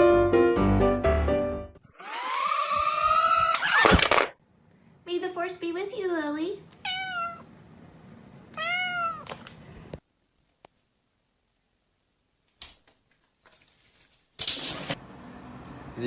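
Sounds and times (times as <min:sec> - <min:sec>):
cat meowing: 0:06.8 - 0:07.5, 0:08.5 - 0:09.3.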